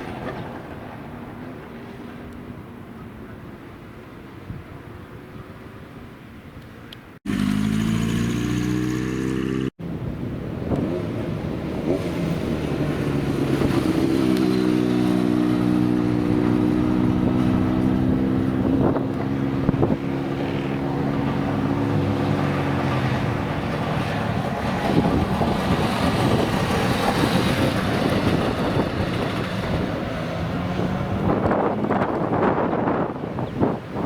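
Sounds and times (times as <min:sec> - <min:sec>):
motorcycle engine revving: 0:07.2 - 0:09.8, 0:10.7 - 0:31.8.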